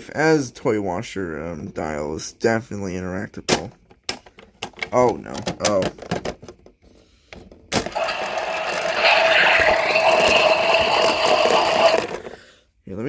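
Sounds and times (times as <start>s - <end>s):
toy washing machine whirring: 7.8s - 12.5s.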